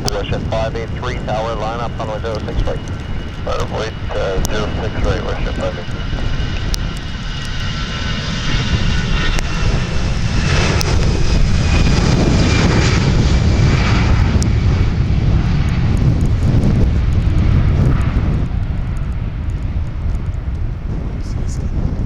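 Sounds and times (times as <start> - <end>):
faint high whine: 0.0 - 12.9
airliner engines rumbling: 0.0 - 22.0.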